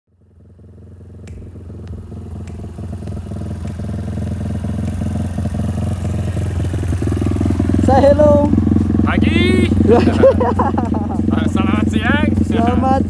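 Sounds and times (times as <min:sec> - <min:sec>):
engine idling: 0:00.1 - 0:13.0
sharp clicks: 0:01.1 - 0:07.0.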